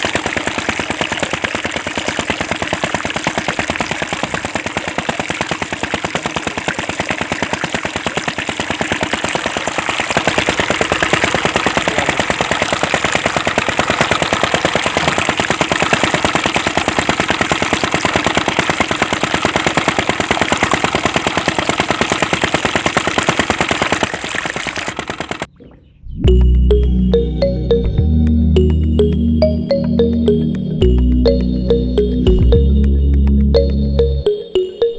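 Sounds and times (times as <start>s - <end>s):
small water pump engine chugging: 0.0s - 25.6s.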